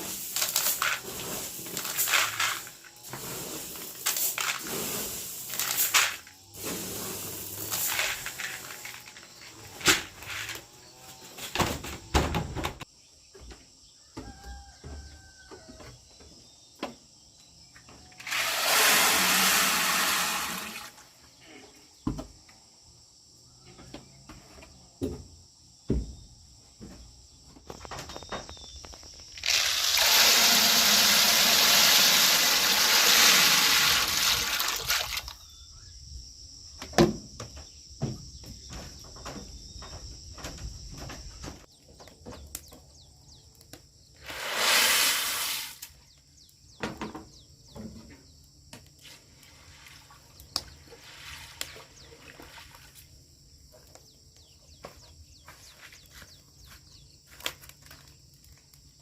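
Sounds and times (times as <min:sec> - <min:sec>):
insects chirping: 0:00.0 - 0:59.0
water pouring: 0:18.3 - 0:21.0, 0:29.4 - 0:35.4.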